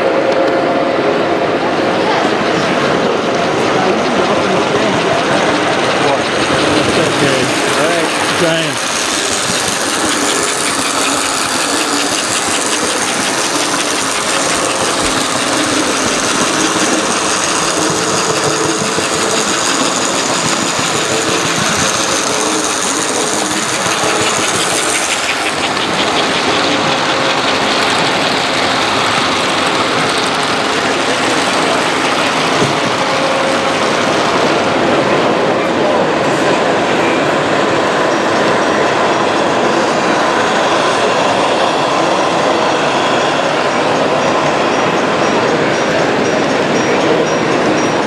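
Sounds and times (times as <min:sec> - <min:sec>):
model train whirring and rattling: 0:00.0 - 0:48.0
fast even clicking: 0:02.2 - 0:34.5.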